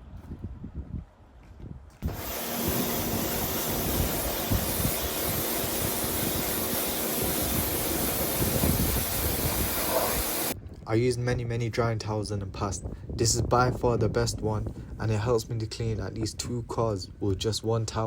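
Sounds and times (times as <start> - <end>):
pressure washer water spray hiss: 2.0 - 10.6.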